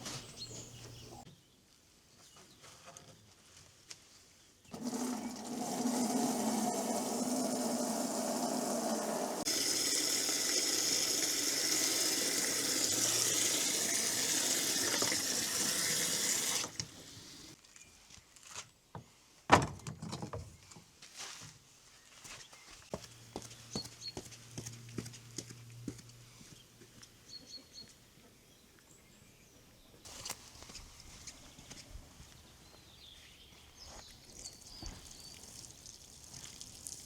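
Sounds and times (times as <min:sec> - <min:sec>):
water running from a tap: 0:04.7 - 0:16.8.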